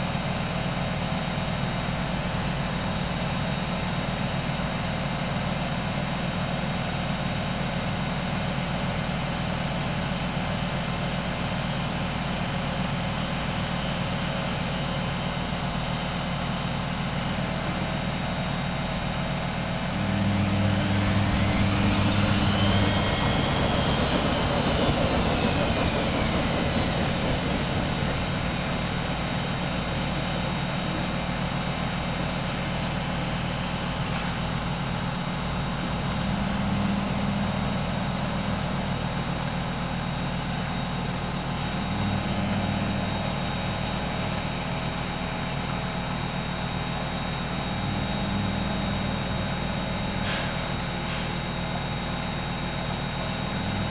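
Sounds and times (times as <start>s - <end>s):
washing machine rushing noise: 16.2s - 53.9s
motor whine: 17.4s - 53.9s
low hum: 17.6s - 39.1s.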